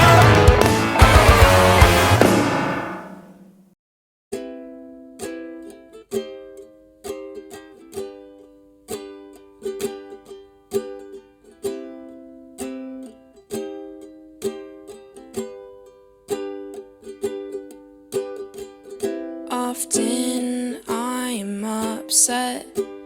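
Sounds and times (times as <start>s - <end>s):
strummed string instrument chords: 0.0s - 3.6s.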